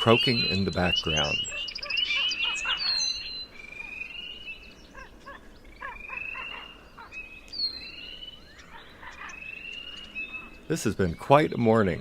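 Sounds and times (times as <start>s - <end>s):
ravens croaking: 0.0s - 7.4s, 8.0s - 12.0s
frog chorus: 0.0s - 12.0s
spring peepers whistled peeps: 0.0s - 12.0s.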